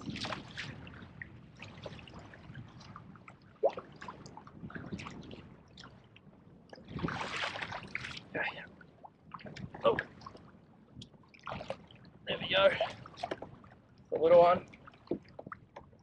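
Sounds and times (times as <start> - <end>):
water lapping against kayak hull: 0.0 - 16.0.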